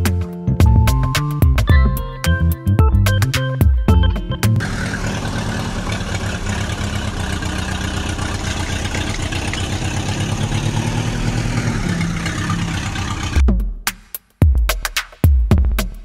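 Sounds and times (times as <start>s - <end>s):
vehicle engine chugging: 3.9s - 13.4s.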